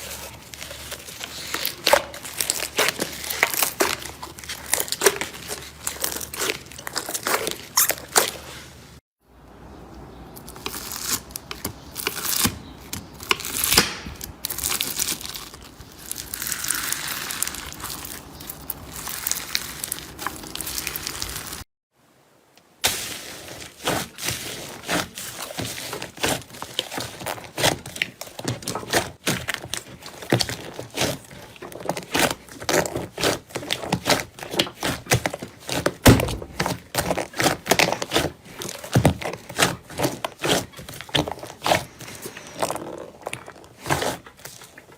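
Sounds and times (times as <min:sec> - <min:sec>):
slime crinkling and crackling: 0:00.0 - 0:09.0, 0:10.4 - 0:21.6, 0:22.8 - 0:44.9.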